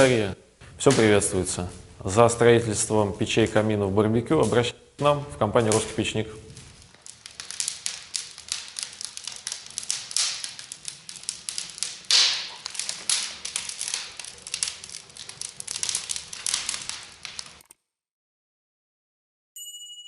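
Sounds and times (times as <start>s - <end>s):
fire crackling and popping: 4.4s - 17.7s.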